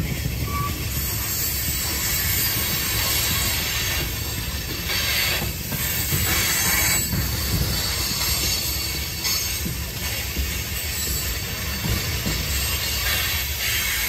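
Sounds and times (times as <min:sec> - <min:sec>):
train wheels rumbling on rail: 0:00.0 - 0:14.0
high wheel squeals: 0:00.4 - 0:05.5.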